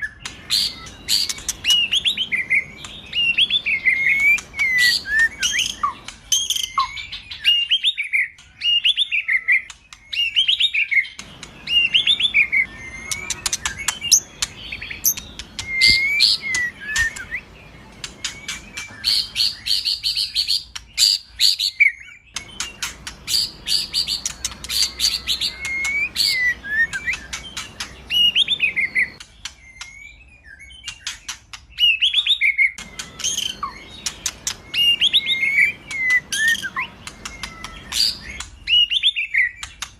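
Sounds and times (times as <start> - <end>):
bird singing varied song: 0.0 - 39.9.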